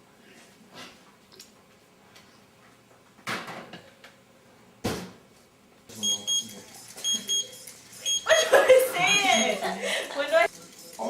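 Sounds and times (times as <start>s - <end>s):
short electronic beeps: 6.0s - 8.4s.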